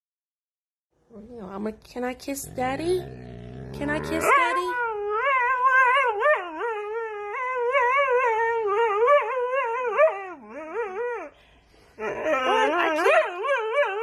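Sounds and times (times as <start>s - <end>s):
dog howling: 2.4s - 11.3s.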